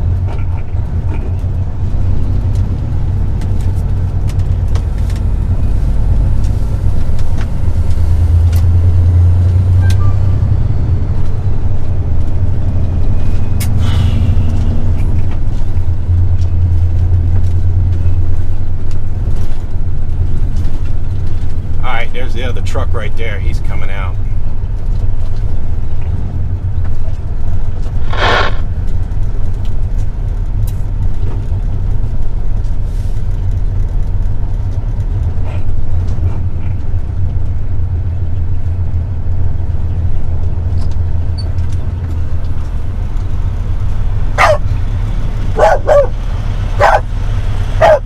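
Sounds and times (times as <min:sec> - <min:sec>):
truck engine and road drone: 0:00.0 - 0:48.0
dog barking: 0:44.4 - 0:44.7, 0:45.5 - 0:46.2, 0:46.8 - 0:47.1, 0:47.8 - 0:48.0.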